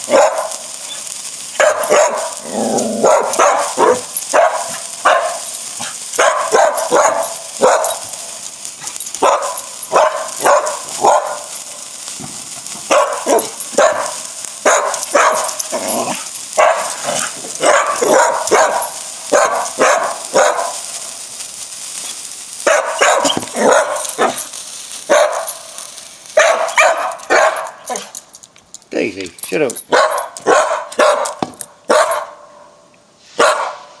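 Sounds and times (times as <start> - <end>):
steady high hiss: 0.0 - 34.0
dog barking: 0.1 - 0.6, 1.6 - 2.4, 3.0 - 5.5, 6.2 - 8.0, 9.2 - 11.5, 12.9 - 15.6, 16.6 - 17.0, 17.6 - 20.8, 22.7 - 24.4, 25.1 - 25.6, 26.4 - 28.1, 29.9 - 32.6, 33.4 - 34.0.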